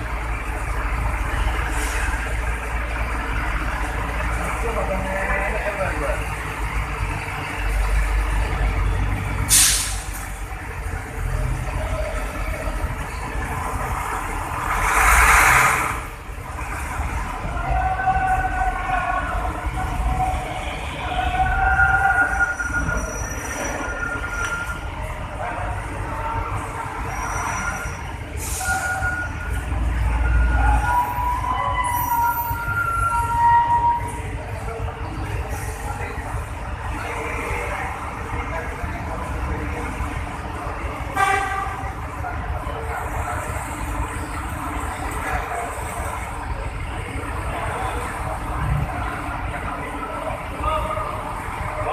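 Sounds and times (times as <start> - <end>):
truck diesel engine rumbling: 0.0 - 51.9
air hiss: 9.5 - 10.1
air brake hiss: 9.5 - 10.2, 28.4 - 29.0.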